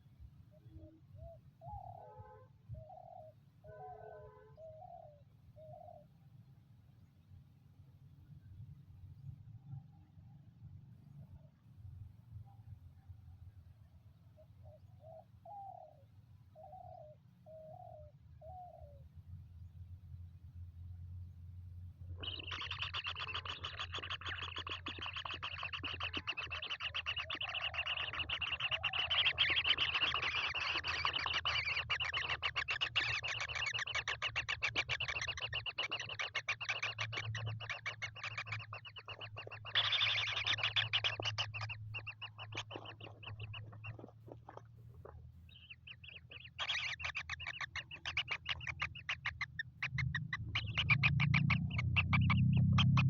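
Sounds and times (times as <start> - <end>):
steady low hum: 18.2 - 53.0
baby kingfishers chattering: 22.2 - 53.0.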